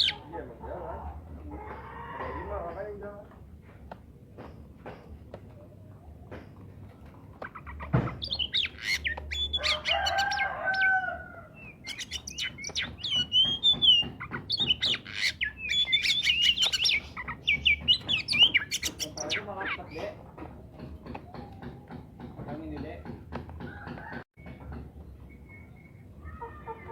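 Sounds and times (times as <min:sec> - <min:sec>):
bird singing varied song: 0:00.0 - 0:00.3, 0:05.9 - 0:23.1.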